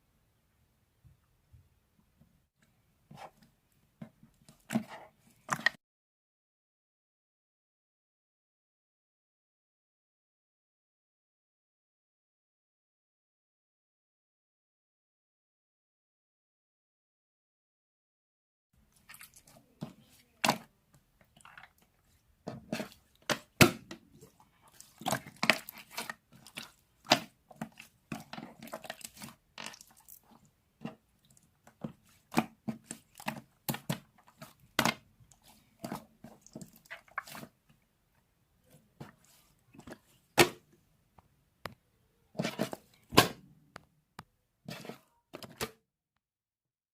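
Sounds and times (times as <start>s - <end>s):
ice clicking and crackling in drink: 24.9s - 30.4s.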